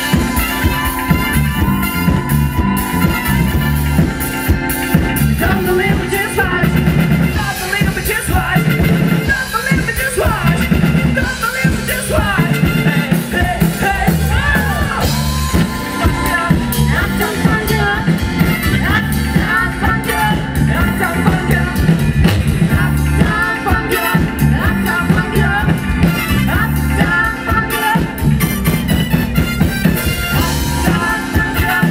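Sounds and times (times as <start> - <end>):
bass guitar: 0.0 - 31.9
drums: 0.0 - 31.9
rock band playing: 0.0 - 31.9
person singing: 5.4 - 28.4, 30.3 - 31.9.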